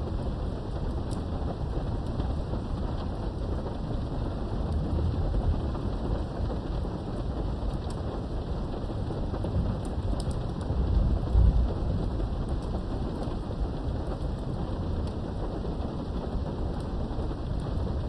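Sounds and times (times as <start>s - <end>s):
rolling thunder rumble: 0.0s - 18.0s
steady rain: 0.0s - 18.0s
raindrops ticking: 0.2s - 18.0s.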